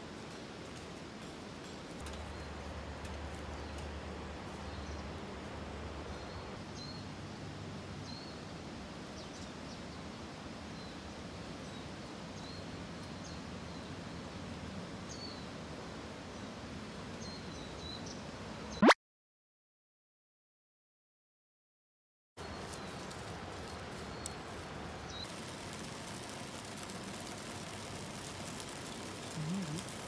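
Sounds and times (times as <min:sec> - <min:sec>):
steady background hiss: 0:00.0 - 0:18.8, 0:22.4 - 0:30.0
small birds chirping: 0:01.6 - 0:10.1, 0:22.4 - 0:30.0.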